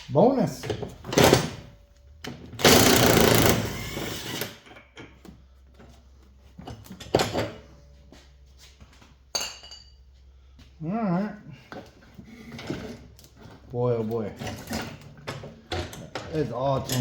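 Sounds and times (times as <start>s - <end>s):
light clicks of metal parts: 14.1s - 17.0s
metal tools rattling: 14.2s - 17.0s.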